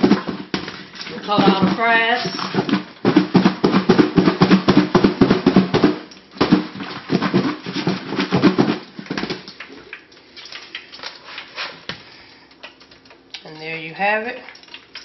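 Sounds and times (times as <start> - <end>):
fries rattling in shaken bowl: 0.0 - 9.9.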